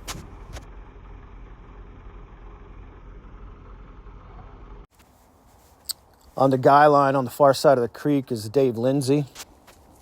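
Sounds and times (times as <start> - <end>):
low rumble: 0.0 - 4.9.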